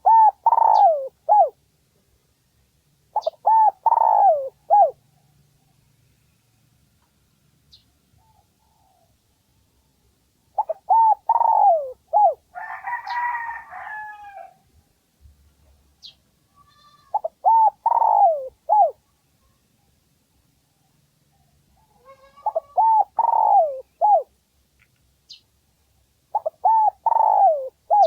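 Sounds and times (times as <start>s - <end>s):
dove cooing: 0.0s - 1.6s, 3.1s - 5.3s, 10.6s - 14.5s, 17.1s - 19.0s, 21.4s - 24.3s, 26.3s - 28.0s
rough noisy bird call: 0.0s - 1.6s.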